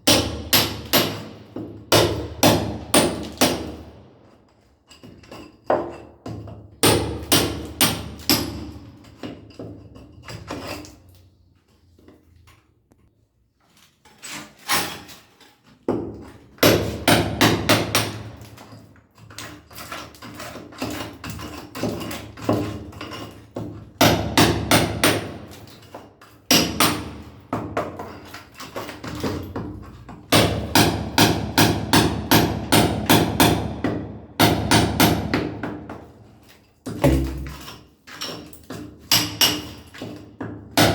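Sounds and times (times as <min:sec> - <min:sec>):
sledgehammer striking chisel: 0:00.0 - 0:04.0, 0:05.1 - 0:09.8, 0:15.9 - 0:18.8, 0:19.8 - 0:36.2, 0:36.8 - 0:40.9.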